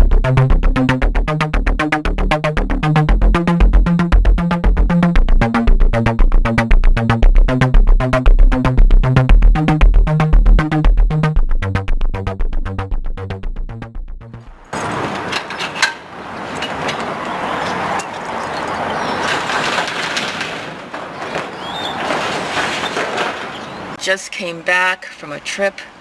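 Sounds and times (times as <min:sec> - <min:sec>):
electronic music with synth bass: 0:00.0 - 0:14.6.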